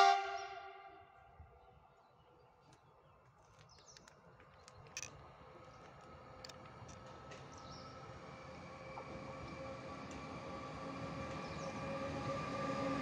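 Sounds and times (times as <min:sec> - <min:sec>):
electric locomotive rumble and hum: 0:03.7 - 0:13.0.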